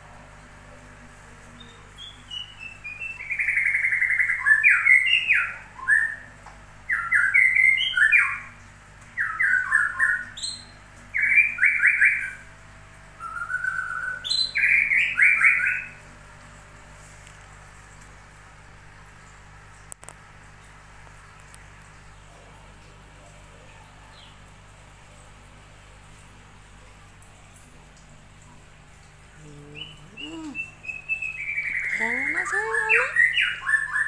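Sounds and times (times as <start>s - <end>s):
songbird singing trills: 1.6s - 6.3s, 6.9s - 8.6s, 9.2s - 12.4s, 13.2s - 16.0s, 29.4s - 34.0s.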